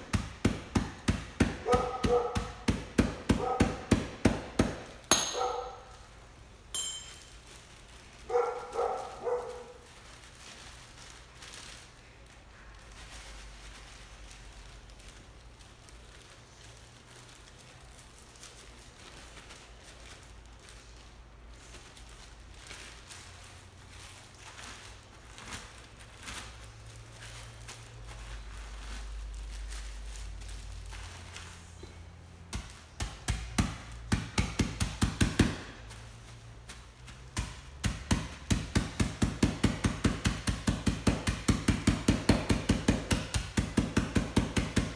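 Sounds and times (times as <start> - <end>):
light clink: 6.7 - 7.4.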